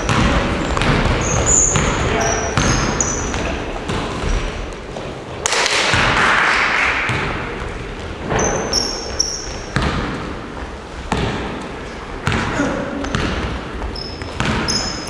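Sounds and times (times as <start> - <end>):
basketballs bouncing on gym floor: 0.0 - 4.8, 7.0 - 15.0
short high squeaks: 8.4 - 9.6.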